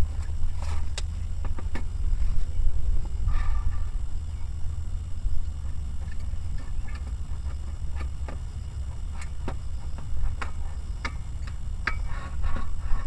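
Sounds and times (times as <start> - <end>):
steady low rumble: 0.0 - 13.0
sharp irregular ticks and knocks: 9.1 - 12.0.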